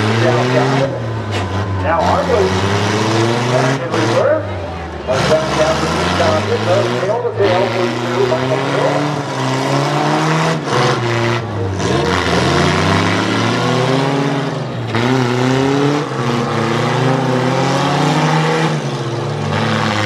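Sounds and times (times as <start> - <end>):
vehicle engines revving: 0.0 - 20.0.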